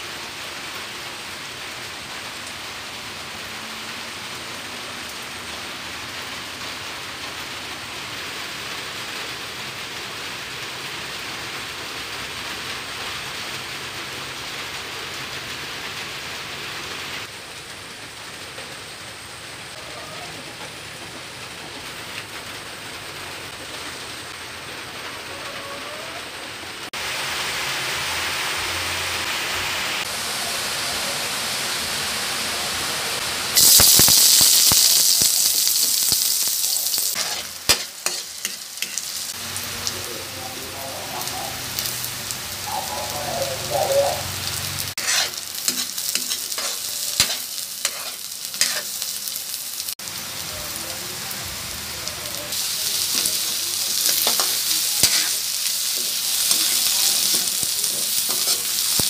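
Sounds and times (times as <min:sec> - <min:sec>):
oil hissing in a wok: 0:00.0 - 0:26.2, 0:26.9 - 0:59.0
onions sizzling in oil: 0:00.0 - 0:59.0
spatula scraping a wok: 0:36.4 - 0:39.4, 0:44.9 - 0:49.1, 0:52.9 - 0:59.0.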